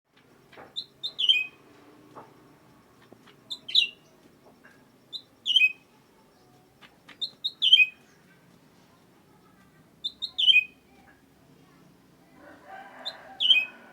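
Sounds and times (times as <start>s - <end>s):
songbird whistling: 0.8s - 1.6s, 3.5s - 4.1s, 5.1s - 5.8s.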